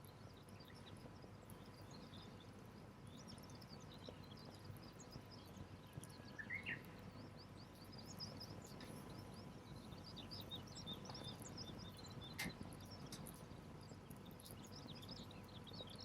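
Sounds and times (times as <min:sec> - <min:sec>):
low outdoor hiss: 0:00.0 - 0:16.0
small birds twittering: 0:00.0 - 0:16.0.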